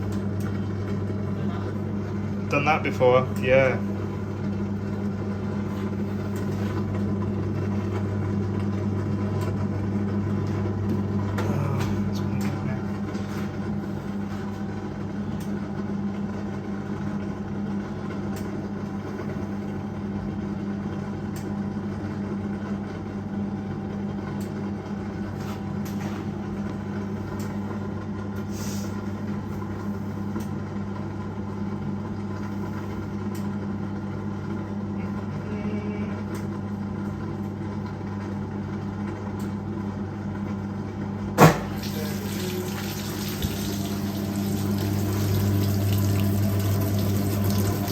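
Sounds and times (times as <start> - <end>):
washing machine motor hum: 0.0 - 47.9
washing machine clunk: 41.3 - 47.9.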